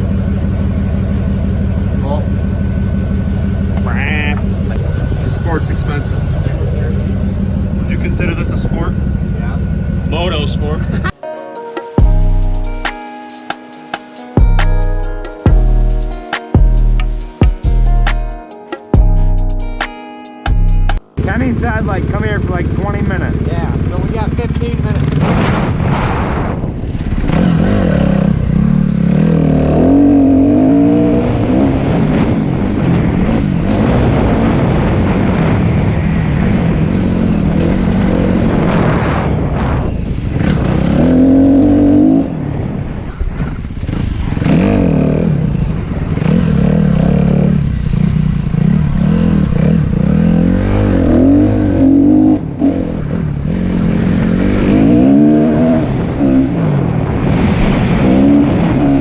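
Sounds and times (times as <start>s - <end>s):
dirt bike engine revving: 0.0s - 13.1s, 21.0s - 59.0s.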